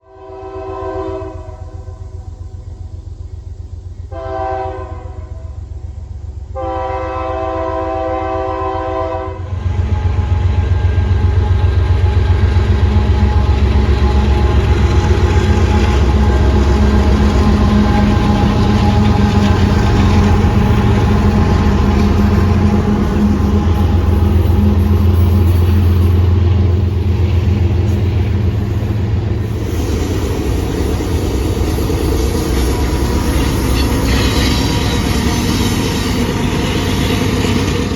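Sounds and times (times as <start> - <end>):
train horn blasts: 0.0 - 2.1, 4.1 - 5.7, 6.5 - 12.3
diesel locomotive engine rumble: 0.0 - 37.9
train wheels on rails: 0.0 - 37.9.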